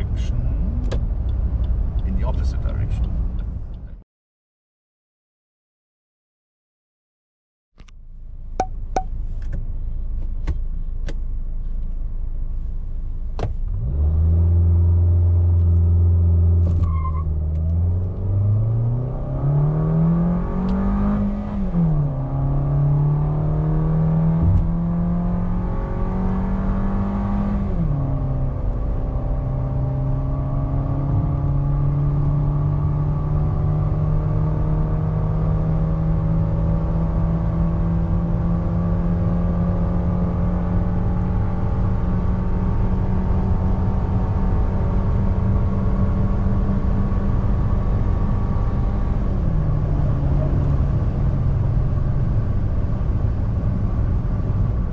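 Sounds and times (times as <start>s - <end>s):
car engine accelerating: 13.6s - 54.9s
wind noise around car: 16.6s - 54.9s.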